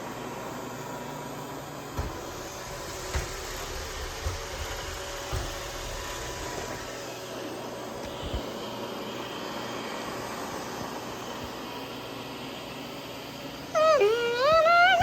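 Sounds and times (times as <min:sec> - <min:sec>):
robot vacuum whirring: 0:01.9 - 0:08.7.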